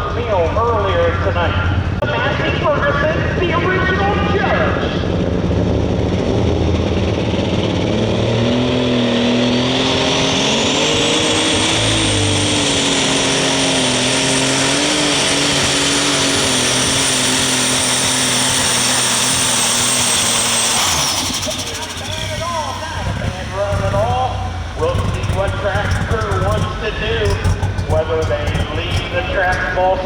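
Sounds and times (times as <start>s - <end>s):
tractor diesel engine under load: 0.0s - 30.0s
turbo whine: 9.4s - 29.8s.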